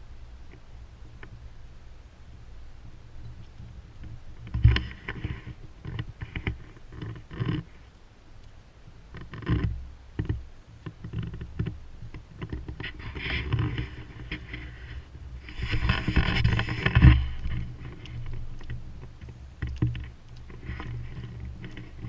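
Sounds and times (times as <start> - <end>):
wind buffeting microphone: 11.0 - 22.0.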